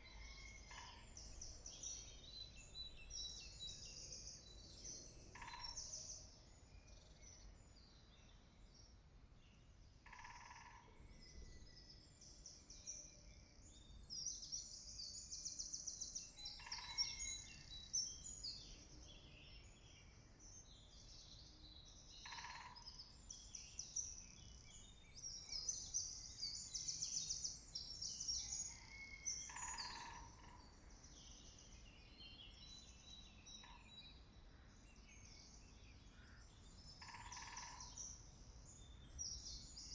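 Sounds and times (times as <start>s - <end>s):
small birds chirping and trilling: 13.5s - 39.9s.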